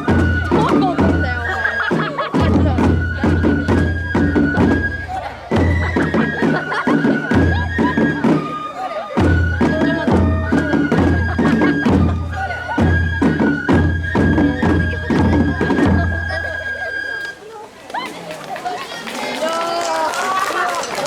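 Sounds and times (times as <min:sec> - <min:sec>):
deep drum beats: 0:00.0 - 0:16.6
high flute long notes: 0:00.0 - 0:17.6.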